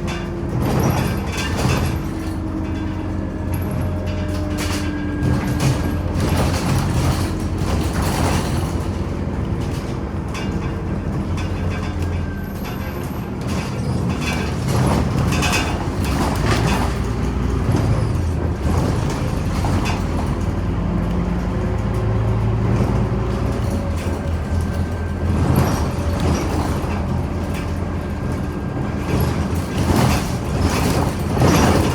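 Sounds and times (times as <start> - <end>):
bus diesel engine running: 0.0 - 31.9
road noise: 0.0 - 31.9
cabin rattles: 21.4 - 31.9.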